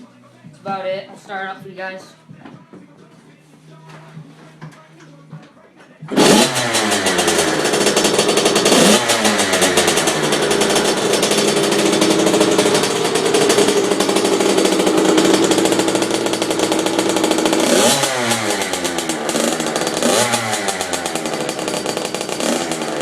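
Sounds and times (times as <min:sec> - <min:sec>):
two-stroke engine revving: 0:06.1 - 0:23.0.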